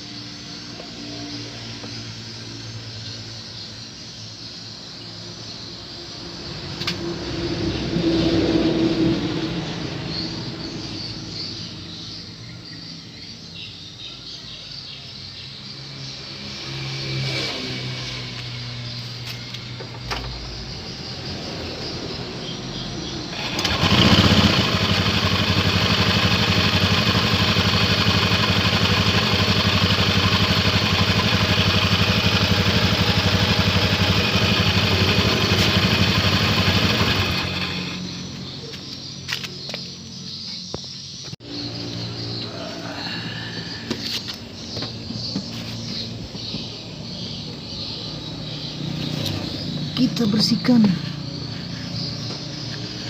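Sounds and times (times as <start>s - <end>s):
loud motor running: 23.3s - 38.4s.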